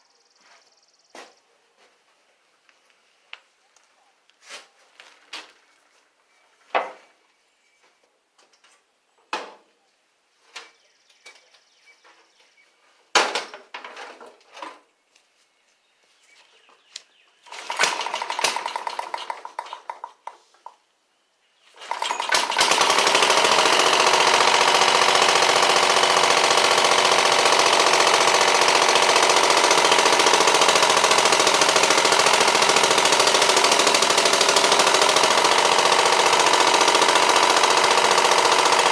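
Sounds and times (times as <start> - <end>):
tractor engine popping: 17.6 - 20.4, 21.9 - 38.9.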